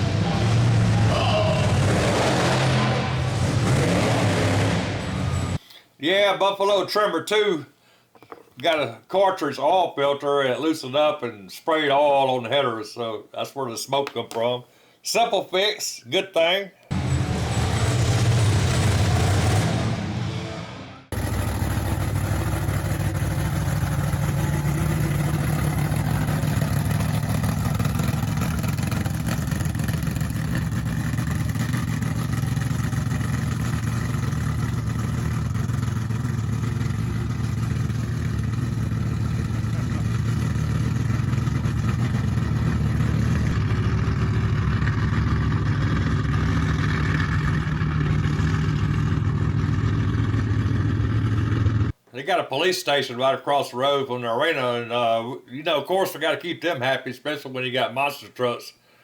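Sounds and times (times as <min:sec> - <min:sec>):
vehicle engine running: 0:00.0 - 0:05.6, 0:16.9 - 0:52.0.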